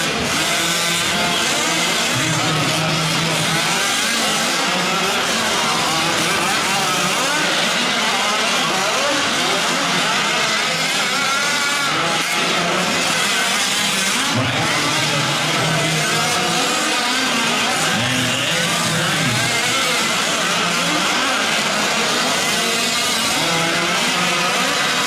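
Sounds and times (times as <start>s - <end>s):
small two-stroke engines racing: 0.0s - 25.0s.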